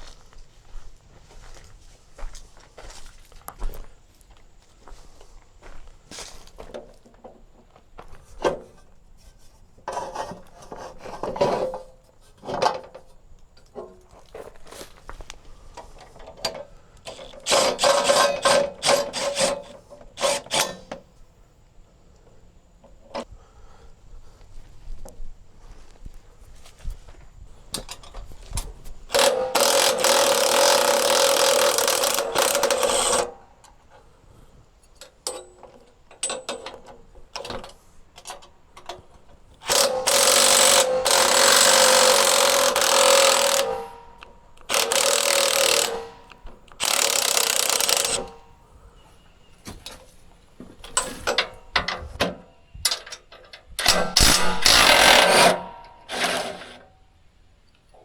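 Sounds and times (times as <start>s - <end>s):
sharp clicks and clanks: 15.8s - 21.0s, 27.8s - 33.4s, 39.6s - 48.4s, 50.8s - 56.9s
power tool running in bursts: 17.1s - 20.8s, 29.1s - 33.4s, 39.6s - 48.5s, 53.8s - 56.8s.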